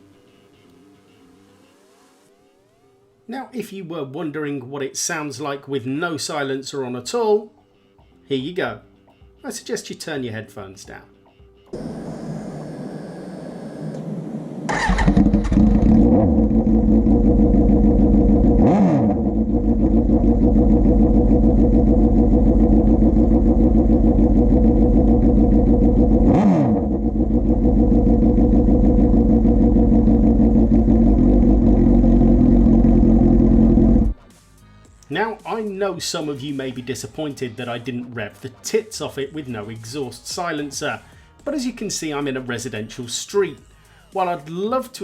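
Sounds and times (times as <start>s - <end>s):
motorcycle engine idling loudly: 14.8s - 18.6s, 19.2s - 34.1s.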